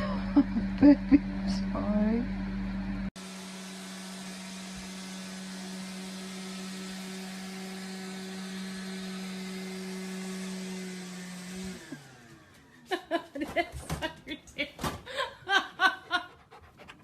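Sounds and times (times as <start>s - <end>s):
electric motor humming: 0.6s - 12.8s.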